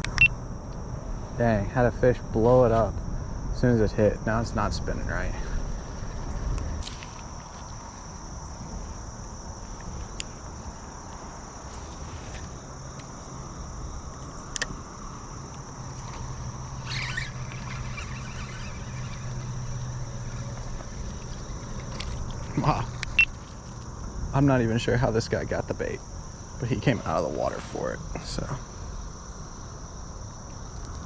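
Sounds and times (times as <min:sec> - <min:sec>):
sharp clicks: 0:00.0 - 0:00.4
insects droning: 0:00.0 - 0:31.0
low outdoor rumble: 0:00.0 - 0:31.0.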